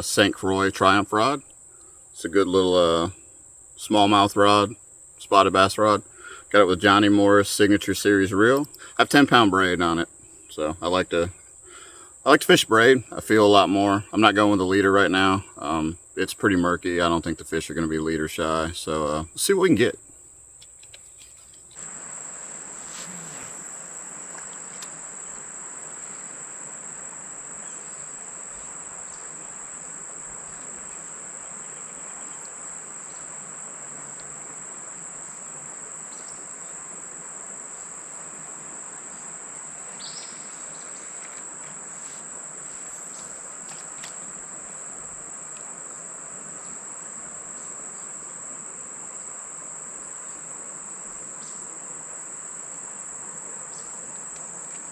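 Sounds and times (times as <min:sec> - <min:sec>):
even hiss: 0:00.0 - 0:54.9
insects droning: 0:00.0 - 0:54.9
faint clicks: 0:08.5 - 0:09.0, 0:20.6 - 0:21.8.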